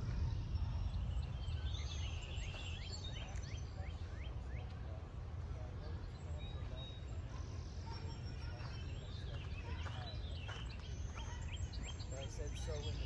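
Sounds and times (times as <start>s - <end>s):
steady low rumble: 0.0s - 3.5s
birds chirping and whistling: 0.1s - 4.7s, 7.6s - 13.0s.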